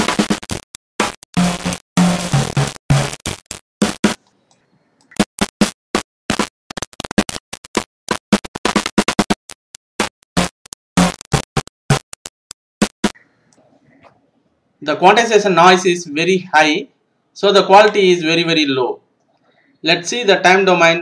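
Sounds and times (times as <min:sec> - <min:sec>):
heavily distorted music: 0:00.0 - 0:04.2, 0:06.3 - 0:09.4.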